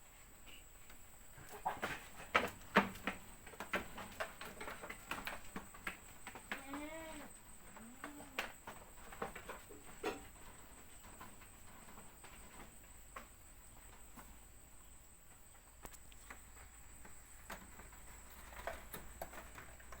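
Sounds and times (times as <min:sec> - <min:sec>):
goat hoof taps and knocks: 0:01.5 - 0:14.4.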